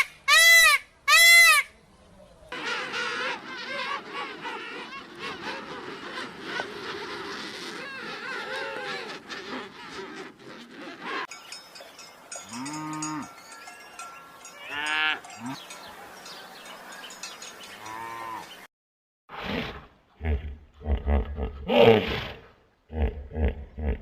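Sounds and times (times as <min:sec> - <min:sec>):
wavering animal calls: 0:02.5 - 0:11.3
cowbells ringing: 0:11.3 - 0:18.7
cows mooing: 0:12.4 - 0:13.4, 0:14.6 - 0:15.8, 0:17.8 - 0:18.6.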